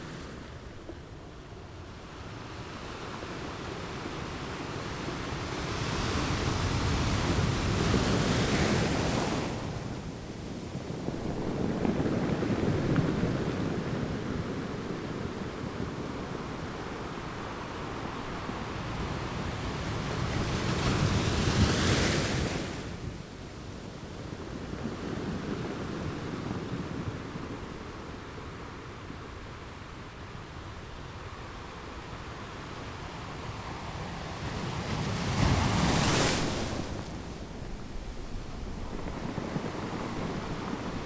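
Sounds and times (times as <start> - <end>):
wind on microphone: 4.8 - 31.1, 33.4 - 41.0
sea rushing past ship: 31.2 - 41.0.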